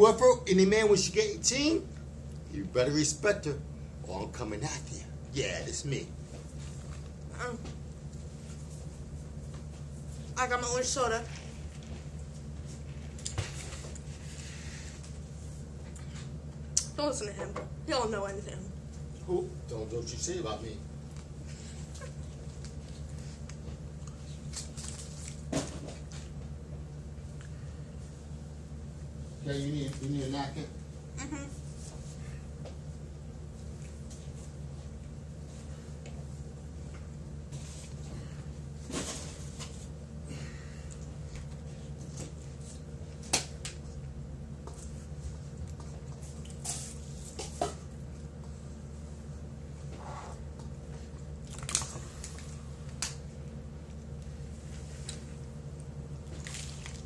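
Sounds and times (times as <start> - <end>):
steady low hum: 0.0 - 57.0
food wrappers rustling: 24.2 - 25.5.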